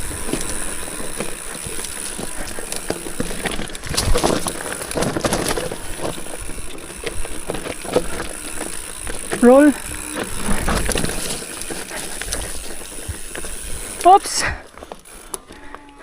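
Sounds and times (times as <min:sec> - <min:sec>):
bike clicks and rattles: 0:00.0 - 0:16.0
bike tyre crunching on ground: 0:00.0 - 0:16.0.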